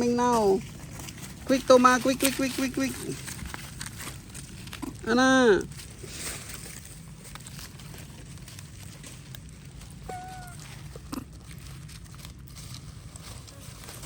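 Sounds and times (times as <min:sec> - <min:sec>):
short pitched animal call: 0:10.0 - 0:10.8.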